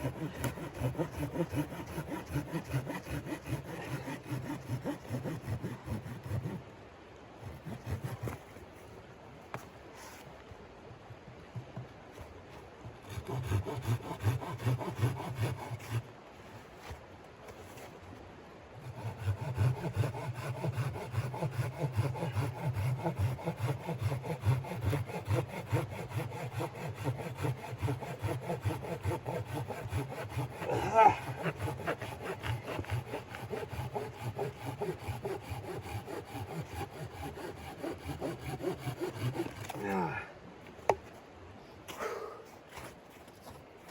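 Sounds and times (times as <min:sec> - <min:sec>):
hand saw cutting wood: 0:00.0 - 0:06.6, 0:07.4 - 0:08.6, 0:13.0 - 0:16.1, 0:18.8 - 0:40.2, 0:42.7 - 0:43.6.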